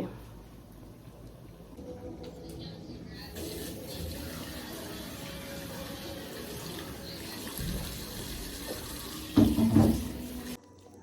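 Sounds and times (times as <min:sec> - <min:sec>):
water running from a tap: 0:03.4 - 0:10.6.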